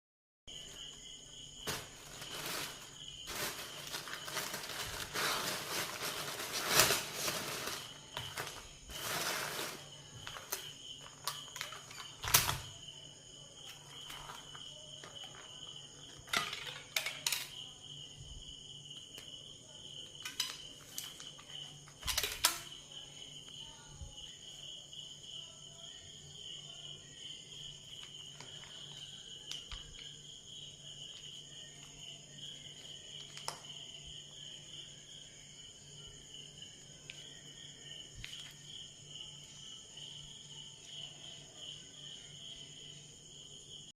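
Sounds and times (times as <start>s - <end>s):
insect trill: 0.5s - 43.9s
food packaging rustling: 1.6s - 12.7s, 13.6s - 17.6s, 20.2s - 22.7s.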